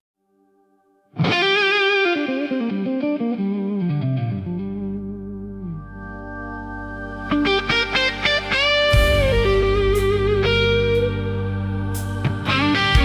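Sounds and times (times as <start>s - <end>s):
electric guitar with effects: 1.1s - 13.0s
low bass tone: 4.5s - 13.0s.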